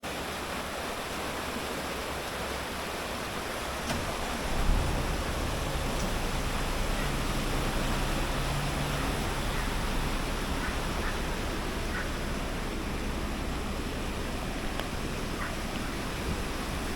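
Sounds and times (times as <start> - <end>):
flowing water rushing: 0.0 - 16.9
low hum: 3.4 - 16.6.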